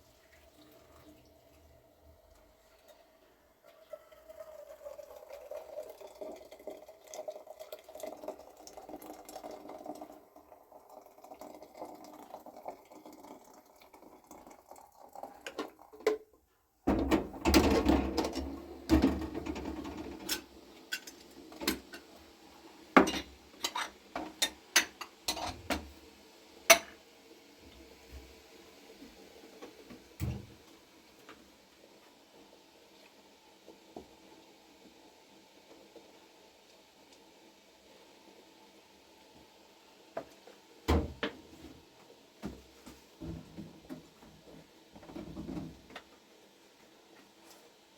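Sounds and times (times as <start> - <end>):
water running: 0.0 - 16.2, 16.9 - 46.2
crockery and cutlery clattering: 23.0 - 25.8.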